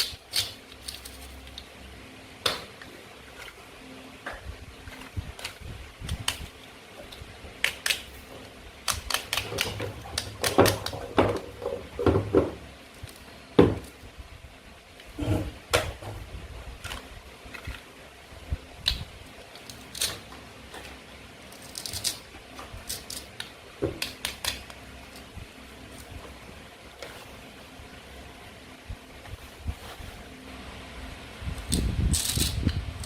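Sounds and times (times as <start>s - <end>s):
plastic toys clicking and knocking: 0.0s - 1.6s, 8.8s - 13.9s, 21.5s - 24.8s.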